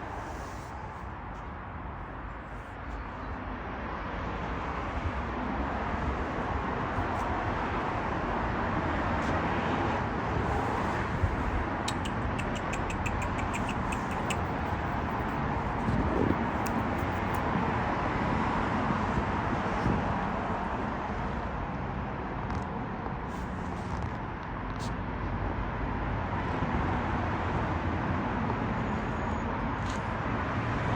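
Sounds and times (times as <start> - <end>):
outdoor background rumble: 0.0 - 30.9
faint clicks: 11.8 - 15.3.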